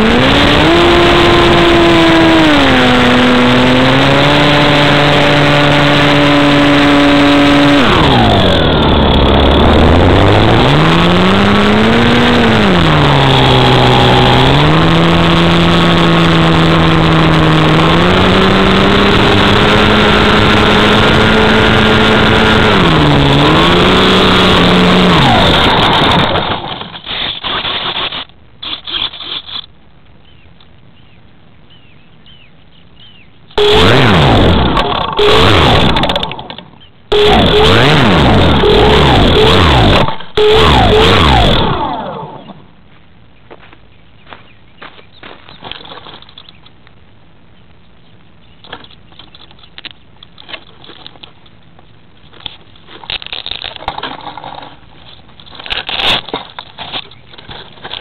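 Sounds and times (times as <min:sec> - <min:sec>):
model airplane motor buzzing: 0:00.0 - 0:29.7, 0:33.6 - 0:42.6, 0:53.1 - 0:58.0
rustling: 0:42.8 - 0:47.0, 0:47.8 - 0:58.0.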